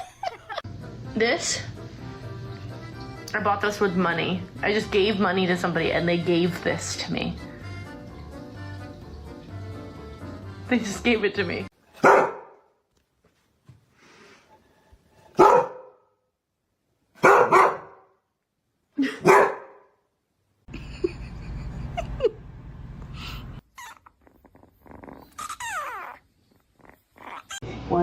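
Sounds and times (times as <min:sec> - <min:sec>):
dog barking: 0:12.0 - 0:12.7, 0:15.3 - 0:16.1, 0:17.2 - 0:18.2, 0:19.2 - 0:19.9.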